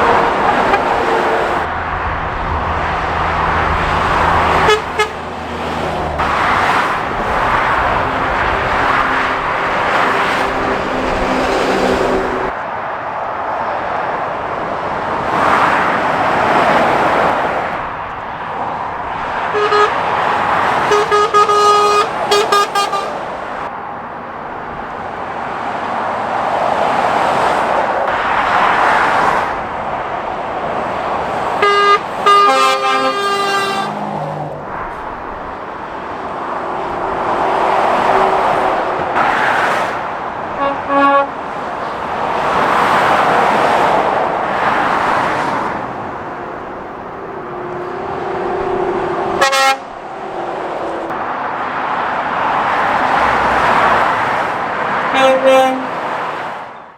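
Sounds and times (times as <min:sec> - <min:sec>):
traffic passing: 0:00.0 - 0:56.9
vehicle horn short toots: 0:04.5 - 0:05.2, 0:19.5 - 0:20.0, 0:20.8 - 0:23.2, 0:31.6 - 0:34.0, 0:40.6 - 0:41.4, 0:49.4 - 0:49.9, 0:55.1 - 0:56.0.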